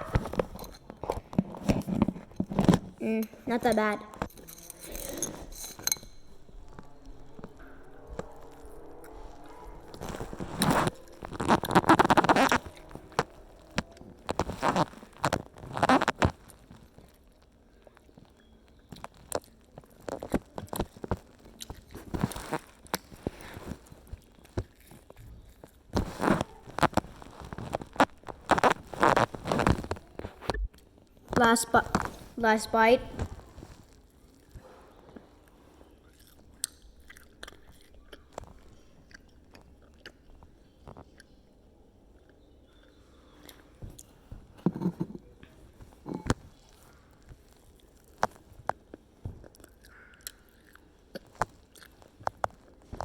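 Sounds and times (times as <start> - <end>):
person chewing food: 0.0 - 31.3, 33.4 - 53.0
mouth clicks and smacks chewing: 34.1 - 44.1, 46.1 - 53.0.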